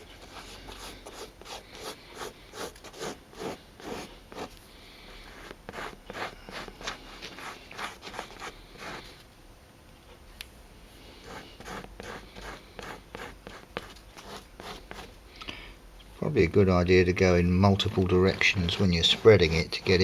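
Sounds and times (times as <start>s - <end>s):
rubbing scrapes on leather: 5.2s - 9.1s, 17.7s - 20.0s.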